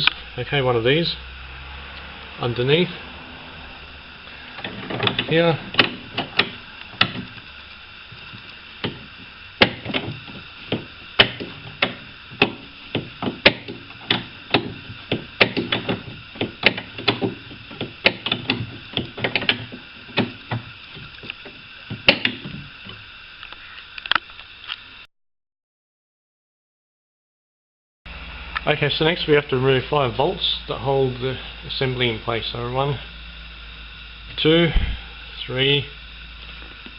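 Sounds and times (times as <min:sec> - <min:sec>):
spanner clicking on bolt: 0:04.6 - 0:07.4, 0:08.2 - 0:23.0.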